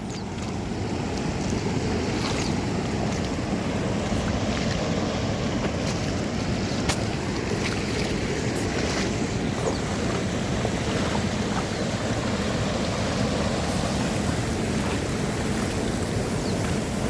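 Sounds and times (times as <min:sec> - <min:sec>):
waterfall and creek rushing: 0:00.0 - 0:17.0.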